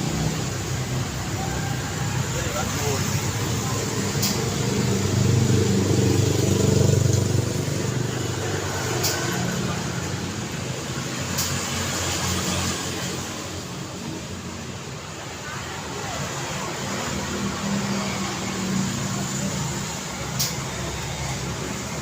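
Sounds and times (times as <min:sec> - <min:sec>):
vehicle engine passing: 0:00.0 - 0:13.8
road noise: 0:00.0 - 0:22.0.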